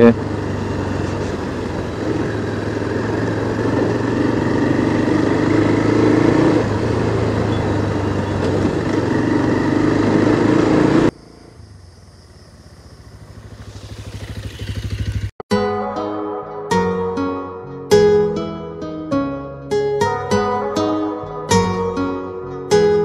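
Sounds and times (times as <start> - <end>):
motorcycle engine running: 0.0 - 15.4.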